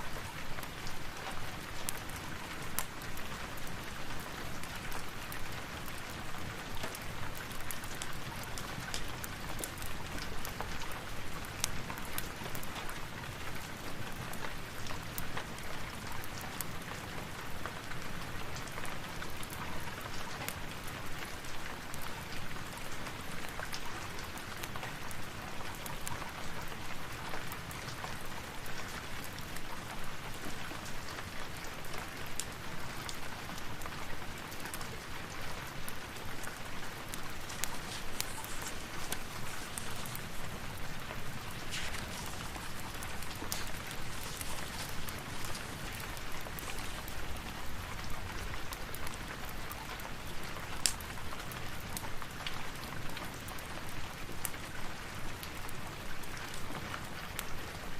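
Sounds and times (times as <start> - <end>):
steady rain hiss: 0.0 - 57.9
raindrops ticking: 17.2 - 53.6.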